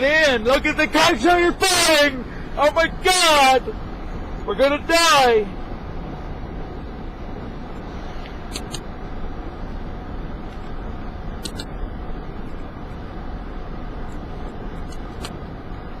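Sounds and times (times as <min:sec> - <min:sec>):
road and engine noise in vehicle: 0:00.0 - 0:16.0.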